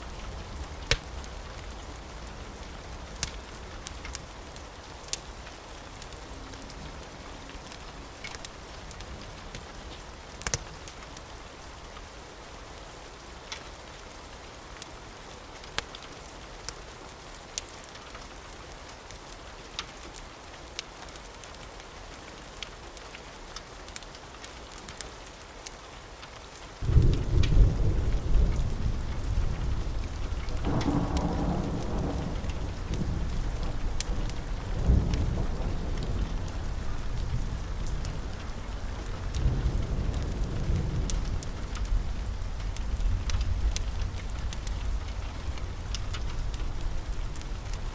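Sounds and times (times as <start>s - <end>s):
steady rain: 0.0s - 47.9s
thunder crack and rumble: 26.8s - 47.9s.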